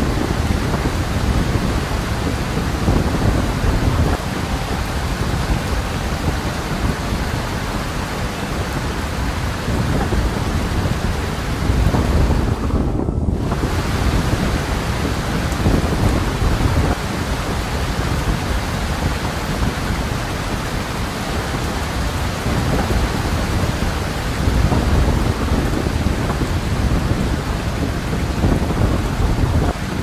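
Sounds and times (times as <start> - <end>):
deep rumble: 0.0 - 17.4
heavy rain: 0.0 - 30.0.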